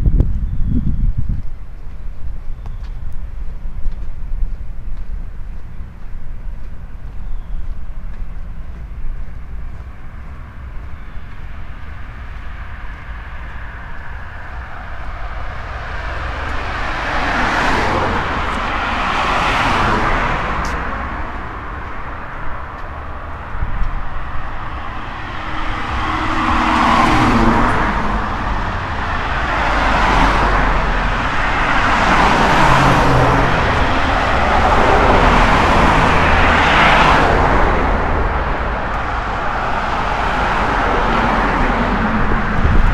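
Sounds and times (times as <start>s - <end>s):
steady low rumble: 0.0s - 42.9s
cars passing: 1.6s - 42.9s.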